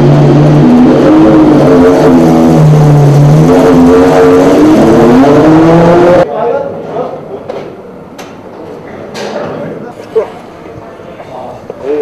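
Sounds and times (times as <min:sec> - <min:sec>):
race car engine revving: 0:00.0 - 0:06.3.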